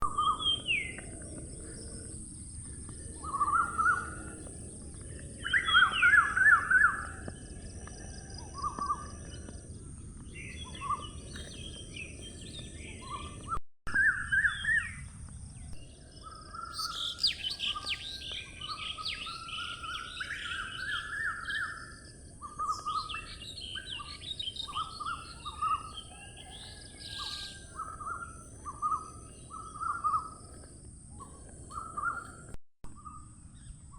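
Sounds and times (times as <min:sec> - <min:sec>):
birds chirping and trilling: 0:00.0 - 0:33.9.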